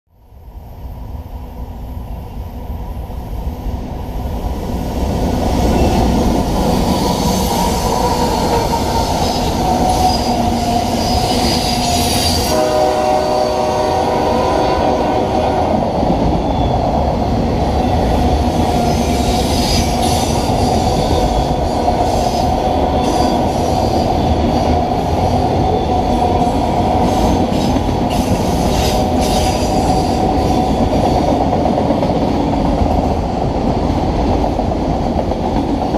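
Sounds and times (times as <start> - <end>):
freight train rumbling past: 0.2 - 35.9
locomotive horn chord: 12.5 - 15.6.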